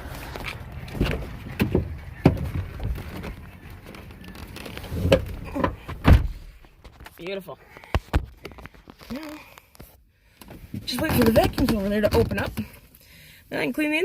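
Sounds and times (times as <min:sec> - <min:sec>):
thumps and knocks: 0:00.9 - 0:06.7.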